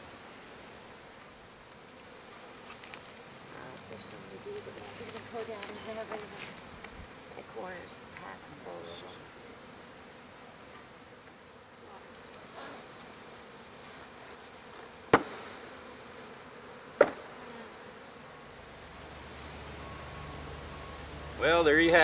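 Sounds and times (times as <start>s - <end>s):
honeybees buzzing: 0.0s - 22.0s
sharp knocks: 17.0s - 17.2s.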